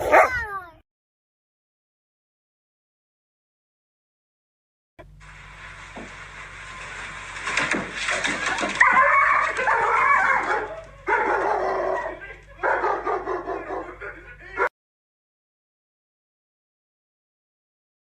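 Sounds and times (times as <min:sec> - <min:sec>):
rustling: 0:05.2 - 0:10.6
dog howling with wavering pitch: 0:08.8 - 0:12.8.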